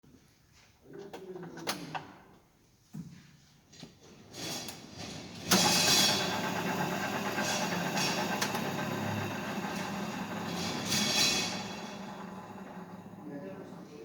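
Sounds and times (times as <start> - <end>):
drill press motor humming: 5.5 - 14.0.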